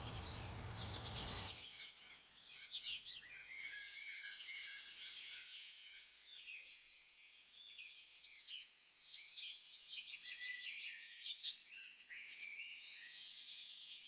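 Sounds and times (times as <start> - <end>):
small birds chirping: 0.0 - 1.6.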